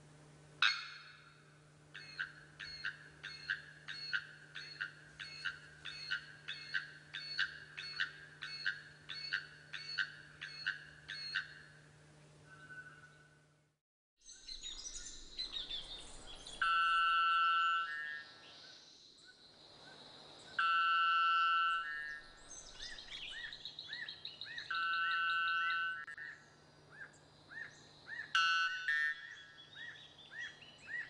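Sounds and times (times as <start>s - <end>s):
bird calling ringing notes: 0.6s - 11.8s, 12.4s - 13.4s, 14.5s - 18.7s, 20.5s - 31.0s
other bird calls: 1.9s - 11.7s, 20.5s - 31.0s.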